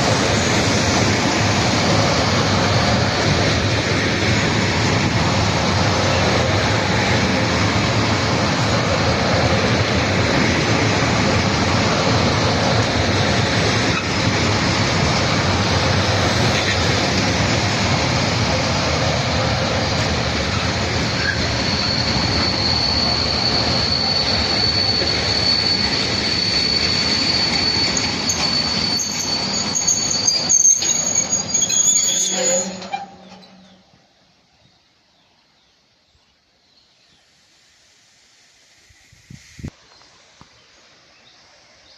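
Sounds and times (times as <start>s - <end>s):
freight train wagons rolling: 0.0s - 34.0s
high wheel squeal: 19.8s - 33.8s.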